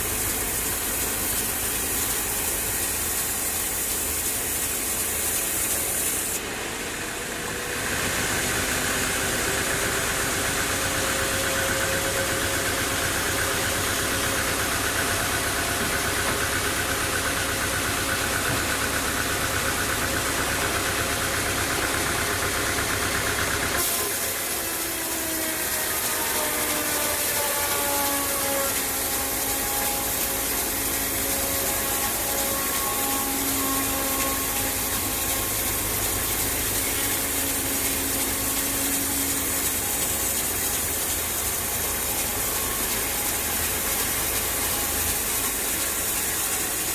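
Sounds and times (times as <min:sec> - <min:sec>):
sawmill machinery running: 0:00.0 - 0:46.9
whining tones: 0:08.8 - 0:21.9, 0:23.8 - 0:46.8.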